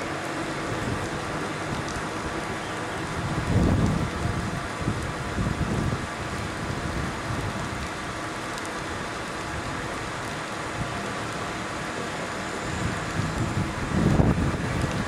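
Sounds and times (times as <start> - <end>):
rain hissing: 0.0 - 15.0
wind gusts on microphone: 0.6 - 7.9, 12.6 - 15.0.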